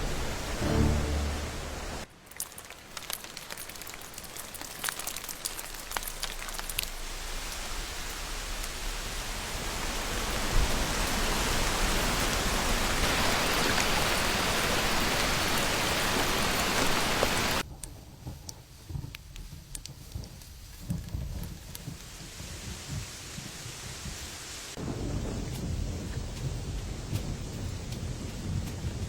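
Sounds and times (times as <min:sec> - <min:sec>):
low rumble: 0:00.0 - 0:02.0
rain hiss: 0:00.0 - 0:17.6, 0:19.7 - 0:29.0
water drips: 0:01.9 - 0:09.0, 0:10.6 - 0:17.6.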